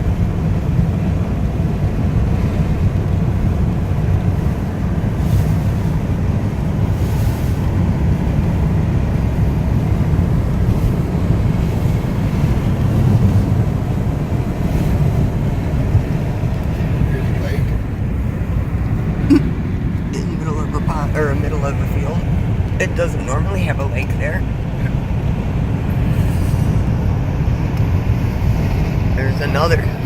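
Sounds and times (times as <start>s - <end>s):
engine and tyre rumble: 0.0s - 30.0s
wind noise: 0.0s - 30.0s.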